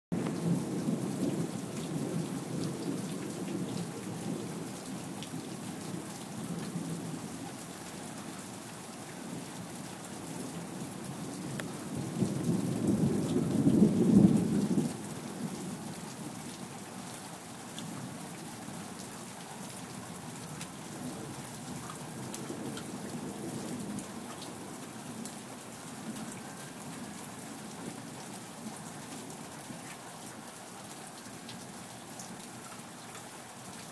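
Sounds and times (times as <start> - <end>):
steady rain falling: 0.1 - 33.9
thunder rumbling: 11.8 - 15.5.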